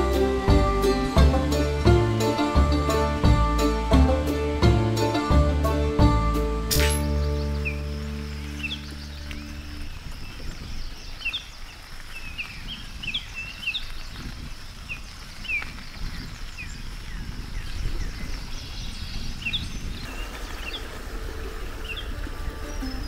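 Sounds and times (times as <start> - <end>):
small birds chirping: 6.7 - 23.0.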